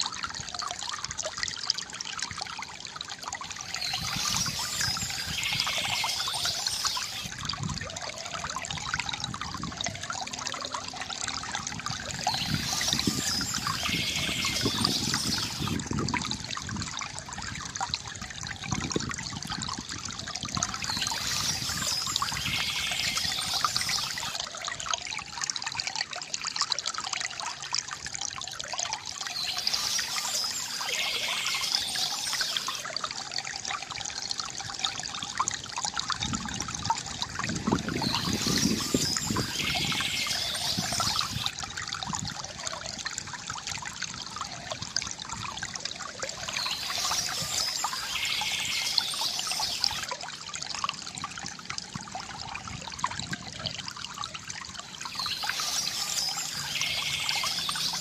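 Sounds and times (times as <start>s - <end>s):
stream trickling: 0.0s - 58.0s.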